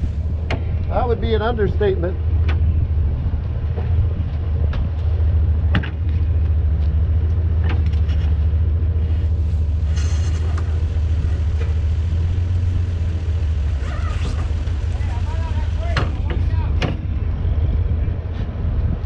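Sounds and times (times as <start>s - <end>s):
vehicle engine running: 0.0s - 19.0s
brief hiss: 9.9s - 10.8s.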